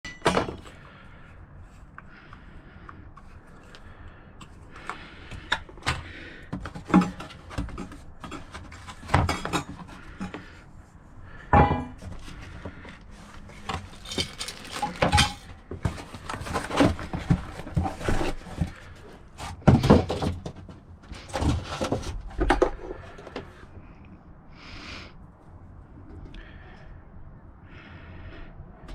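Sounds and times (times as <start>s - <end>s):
metal objects clinking: 13.8s - 15.5s.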